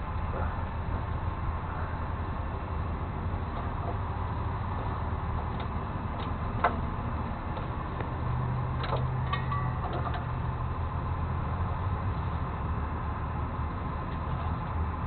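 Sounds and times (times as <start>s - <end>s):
truck engine running: 0.0s - 15.0s
light clicks and rattles: 8.8s - 10.4s.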